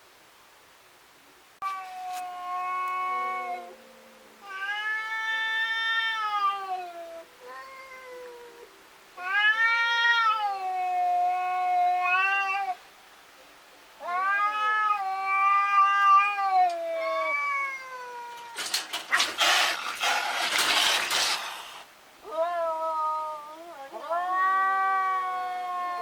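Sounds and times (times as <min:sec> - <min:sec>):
cats yowling: 0:01.6 - 0:03.8, 0:04.4 - 0:12.8, 0:14.0 - 0:21.3, 0:22.2 - 0:26.0
harsh noisy sound: 0:18.8 - 0:21.9.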